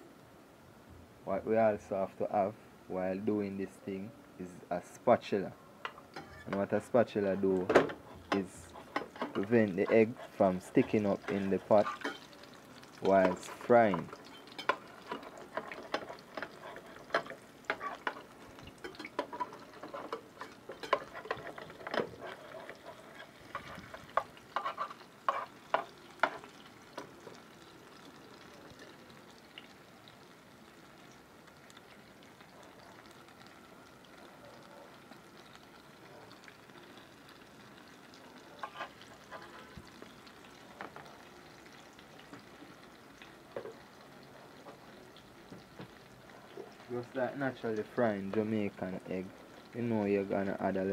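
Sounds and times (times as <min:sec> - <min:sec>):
omelette sizzling in a pan: 0:01.3 - 0:50.9
metal spatula clicking and scraping: 0:08.2 - 0:27.1, 0:38.6 - 0:39.7.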